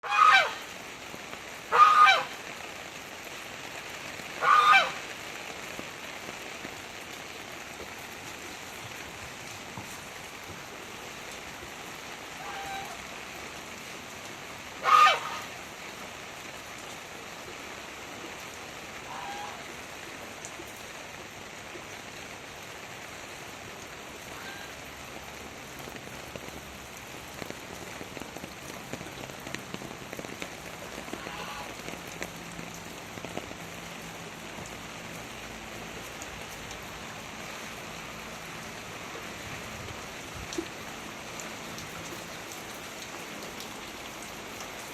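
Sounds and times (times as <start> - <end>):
heavy rain falling: 0.0 - 44.9
bird honking calls: 1.7 - 2.3, 4.4 - 5.0, 14.8 - 15.5.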